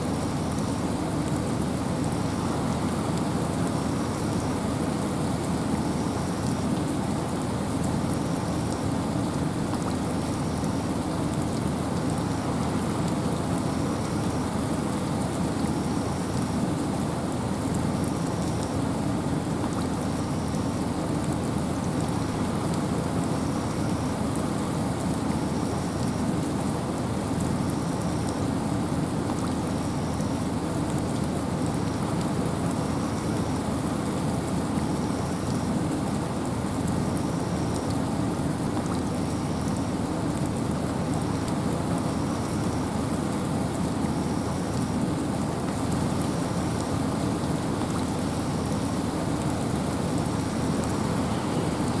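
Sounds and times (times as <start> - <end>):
rain hissing: 0.0 - 52.0.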